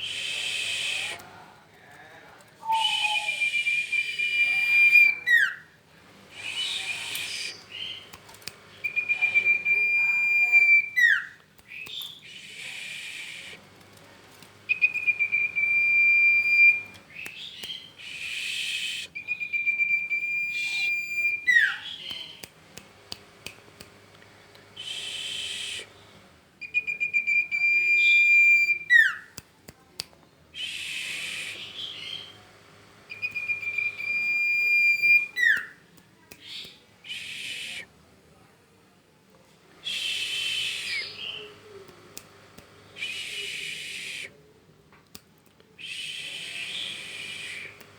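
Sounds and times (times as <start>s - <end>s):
songbird singing: 2.6s - 5.7s, 8.8s - 12.6s, 14.7s - 18.2s, 19.1s - 22.4s, 33.1s - 35.8s.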